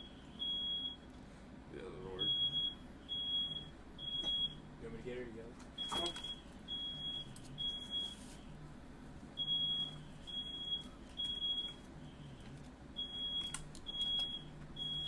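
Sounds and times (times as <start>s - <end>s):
smoke alarm beeping: 0.0s - 1.1s, 2.2s - 4.7s, 5.8s - 8.5s, 9.4s - 15.0s.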